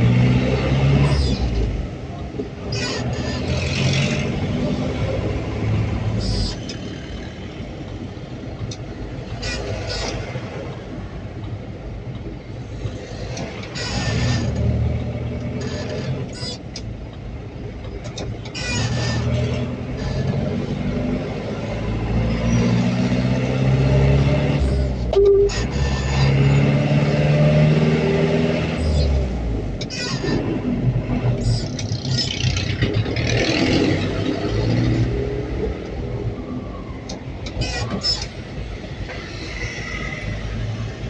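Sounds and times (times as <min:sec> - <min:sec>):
road noise: 0:00.0 - 0:41.0
truck engine pulling away: 0:19.0 - 0:29.8.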